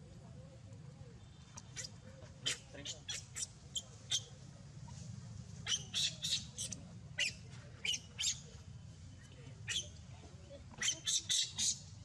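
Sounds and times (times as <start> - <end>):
baby monkey squealing: 10.8 - 11.8.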